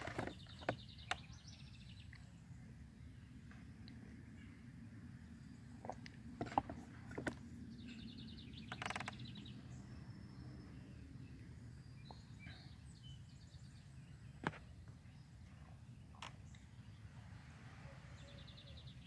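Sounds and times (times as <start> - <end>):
songbirds trilling: 0.0 - 19.0.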